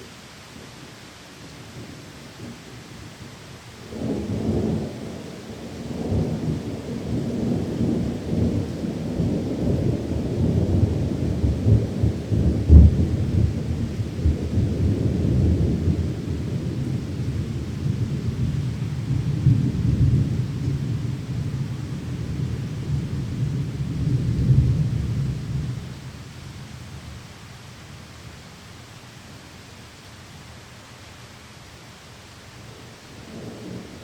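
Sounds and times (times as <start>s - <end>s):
steady rain: 0.0s - 34.0s
rolling thunder: 3.8s - 26.2s, 33.2s - 34.0s
loud thunder clap: 5.8s - 25.8s.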